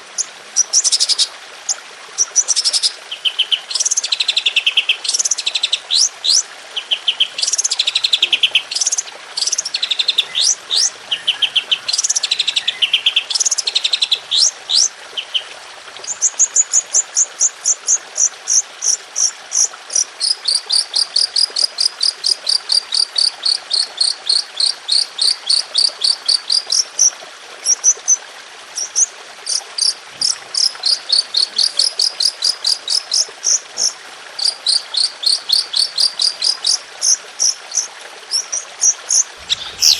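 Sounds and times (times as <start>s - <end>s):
rapid repeated bird notes: 0.1s - 1.3s, 2.2s - 27.1s, 28.8s - 39.9s
songbird singing trills: 2.5s - 16.6s, 38.4s - 39.9s
steady background hiss: 39.3s - 39.9s.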